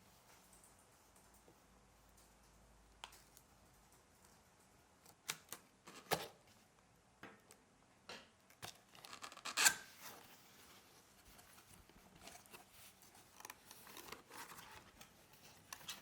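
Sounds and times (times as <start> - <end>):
cardboard packaging rustling: 8.6 - 16.0.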